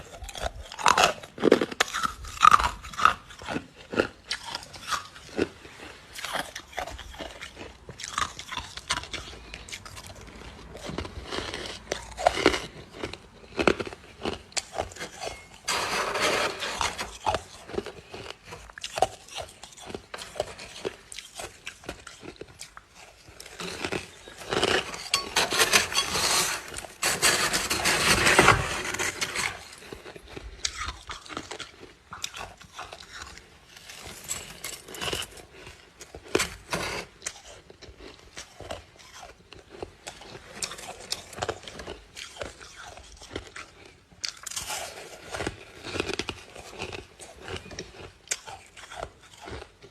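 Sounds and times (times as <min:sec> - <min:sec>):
ice being crunched: 0:23.4 - 0:30.8.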